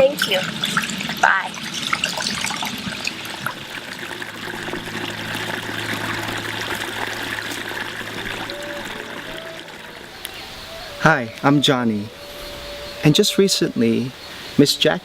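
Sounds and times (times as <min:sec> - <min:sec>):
stream splashing over rocks: 0:00.0 - 0:10.4
low steady hum: 0:00.0 - 0:12.2.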